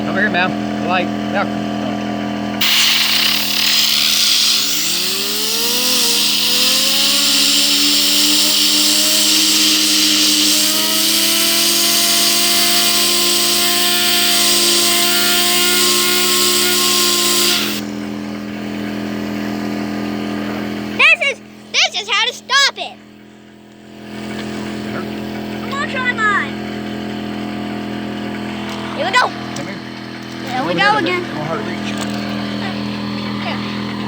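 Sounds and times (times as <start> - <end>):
compressed air hissing: 2.6 - 17.9
fidget spinner whine: 2.6 - 19.8.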